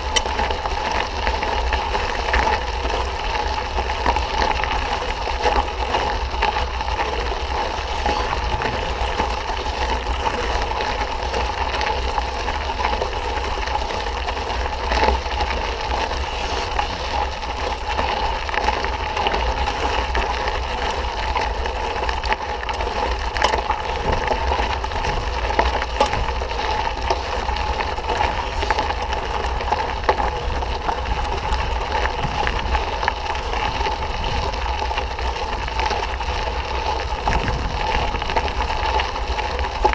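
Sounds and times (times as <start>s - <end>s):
bike tyre and wind noise: 0.0s - 39.9s
bike clicks and rattles: 19.6s - 28.9s.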